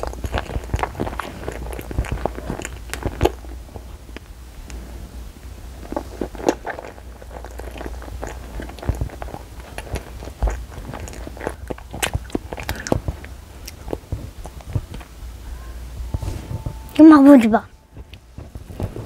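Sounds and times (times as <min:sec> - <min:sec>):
child chewing: 0:00.0 - 0:19.0.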